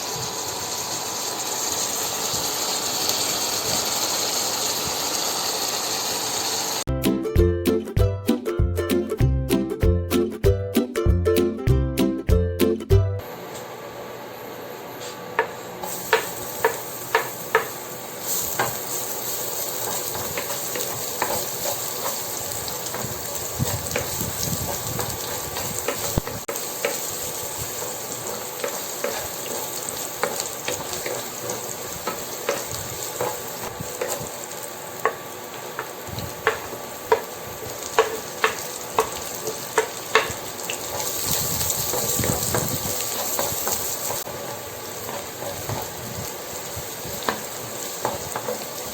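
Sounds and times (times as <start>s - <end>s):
food sizzling in hot oil: 0.0s - 6.9s, 15.7s - 48.9s
utensil tapping against pan: 16.1s - 17.8s, 35.8s - 37.3s, 38.0s - 41.1s.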